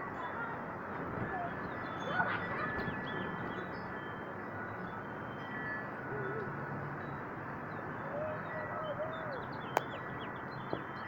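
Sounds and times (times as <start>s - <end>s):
wind: 0.0s - 11.0s
small birds chirping: 7.7s - 11.0s.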